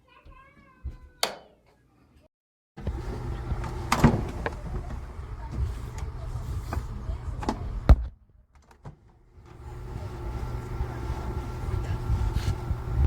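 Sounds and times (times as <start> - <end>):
clothes dryer motor hum: 2.8 - 8.0, 8.9 - 13.0.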